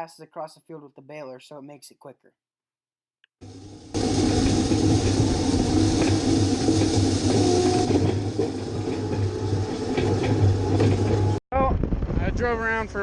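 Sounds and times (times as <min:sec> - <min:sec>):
tractor engine running: 0:03.5 - 0:11.4.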